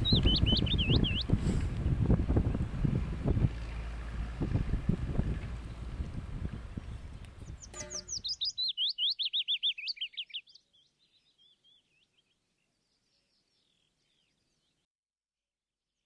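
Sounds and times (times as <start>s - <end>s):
songbird whistling: 0.0s - 1.3s, 7.4s - 12.4s
wind rumble on microphone: 0.0s - 8.3s.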